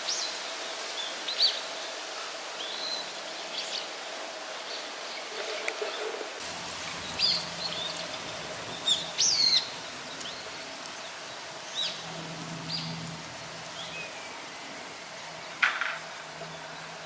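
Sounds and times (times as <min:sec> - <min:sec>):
background hiss: 0:06.3 - 0:17.0
wild bird calling: 0:06.4 - 0:15.8.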